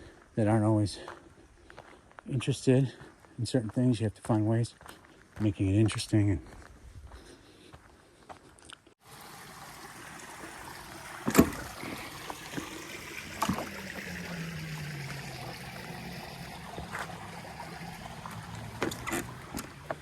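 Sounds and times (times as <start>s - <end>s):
rushing creek water: 9.0s - 20.0s.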